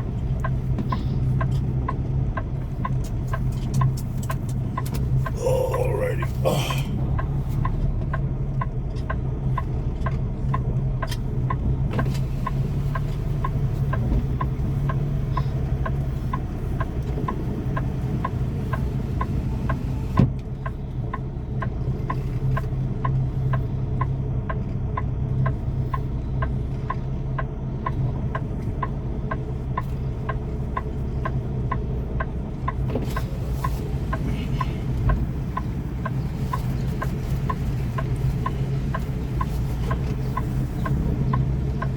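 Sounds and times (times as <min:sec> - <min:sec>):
diesel engine low hum: 0:00.0 - 0:41.9.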